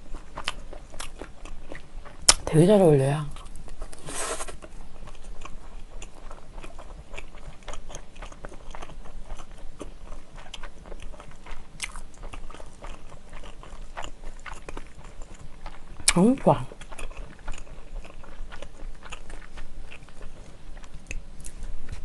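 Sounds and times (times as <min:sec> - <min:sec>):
close chewing with wet clicks: 0:00.0 - 0:04.0, 0:04.6 - 0:22.0.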